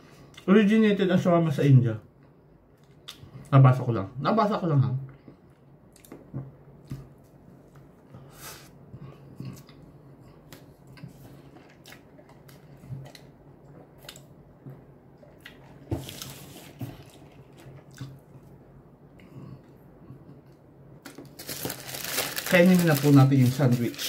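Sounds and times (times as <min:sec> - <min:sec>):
faint low hum: 0:00.0 - 0:24.0
man chewing food: 0:05.1 - 0:21.4.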